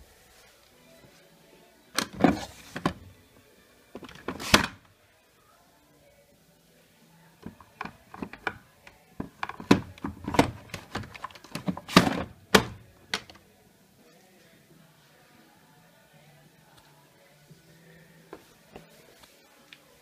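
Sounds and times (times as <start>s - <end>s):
hard objects clicking and knocking: 4.0s - 4.8s, 7.4s - 13.4s.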